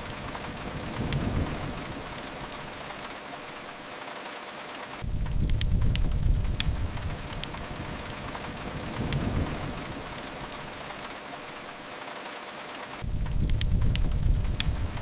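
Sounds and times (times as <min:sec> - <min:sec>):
steady rain: 0:00.0 - 0:15.0
wood fire crackling: 0:00.0 - 0:15.0
low rumble: 0:05.0 - 0:10.2, 0:13.0 - 0:15.0.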